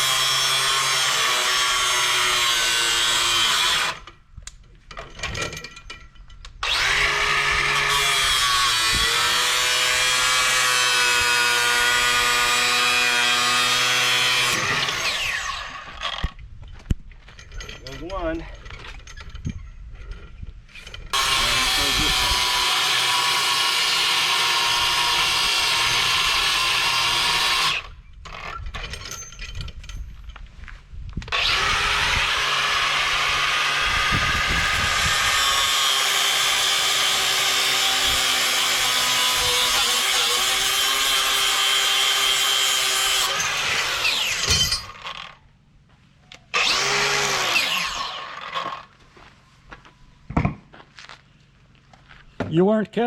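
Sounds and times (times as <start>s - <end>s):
power tool cutting steel: 0.0s - 4.1s, 6.6s - 16.3s, 21.1s - 28.0s, 31.3s - 45.4s, 46.5s - 48.9s.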